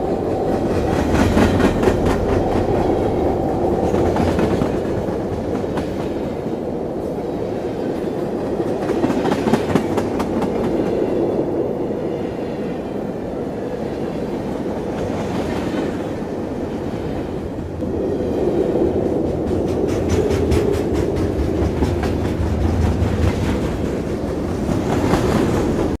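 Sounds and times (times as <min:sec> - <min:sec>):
train rumbling on track: 0:00.0 - 0:26.0.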